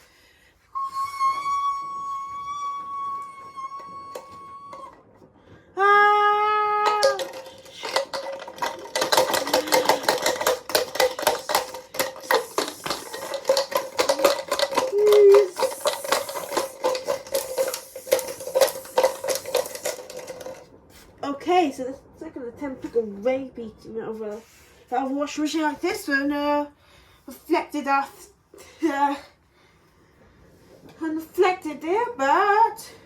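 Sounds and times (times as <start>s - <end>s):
rapid clatter of hard knocks: 6.8s - 20.6s.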